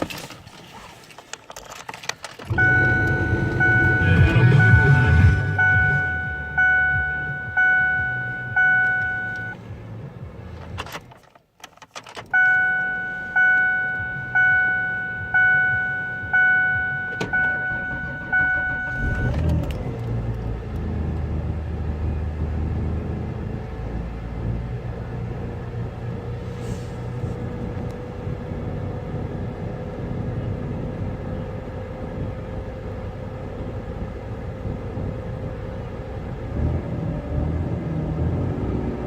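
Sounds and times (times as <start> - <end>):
car engine starting and idling: 0.0 - 39.0
dashboard warning chime dinging: 2.5 - 9.6, 12.3 - 19.6.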